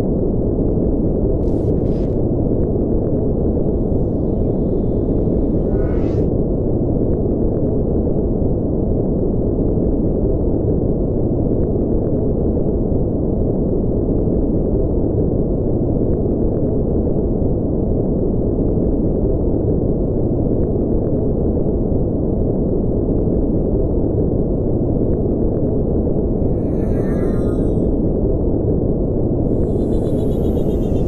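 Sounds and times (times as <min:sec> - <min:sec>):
deep rushing spaceship engine noise: 0:00.0 - 0:10.7, 0:23.2 - 0:31.0.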